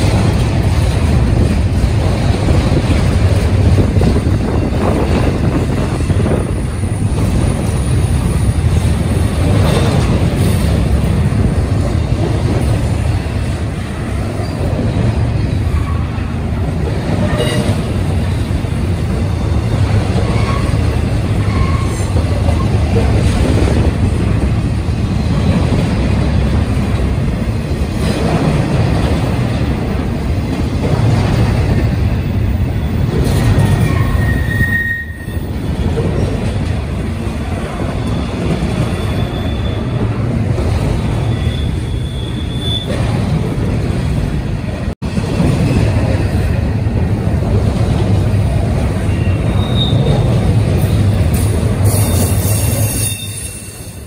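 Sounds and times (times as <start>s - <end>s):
train clicks: 0.0s - 34.4s, 35.4s - 41.4s, 42.8s - 53.1s
train wheels rumbling on rail: 0.0s - 54.0s
wheel squeals: 20.2s - 22.7s, 32.8s - 36.4s, 37.8s - 40.2s, 41.2s - 43.2s, 49.0s - 50.3s, 51.8s - 54.0s.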